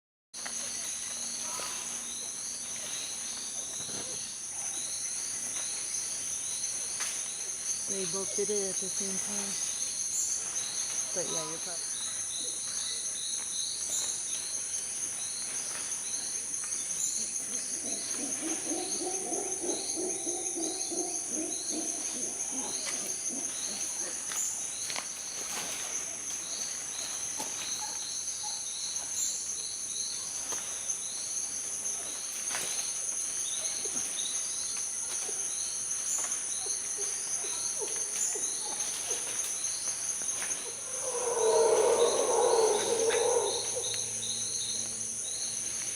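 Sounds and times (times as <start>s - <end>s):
insects chirping: 0.4s - 45.9s
long hooting call: 40.7s - 44.4s.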